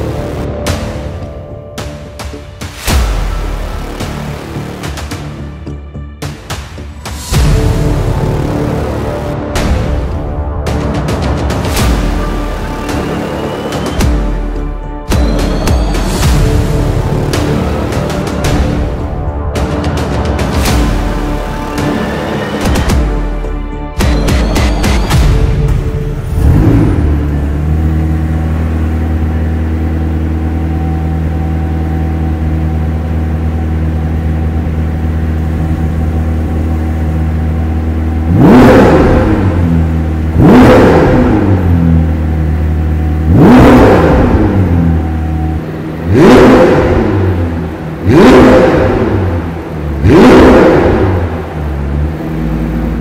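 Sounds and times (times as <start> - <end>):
car engine idling and revving: 0.0 - 53.0.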